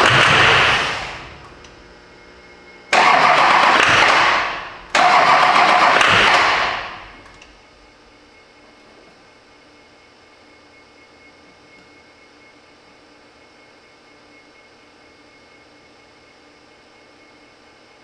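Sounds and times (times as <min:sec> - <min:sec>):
diesel engine revving: 0:00.0 - 0:01.9, 0:03.0 - 0:07.5.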